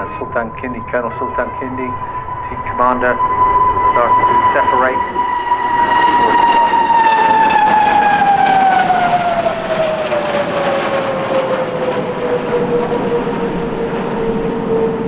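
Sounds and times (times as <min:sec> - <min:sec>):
jet engine whine: 0:00.0 - 0:15.0
jet rushing roar: 0:00.0 - 0:15.0.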